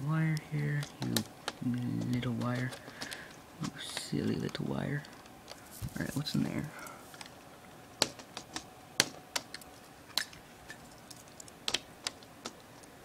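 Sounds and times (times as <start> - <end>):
plastic laptop case clicking: 8.0 - 10.4.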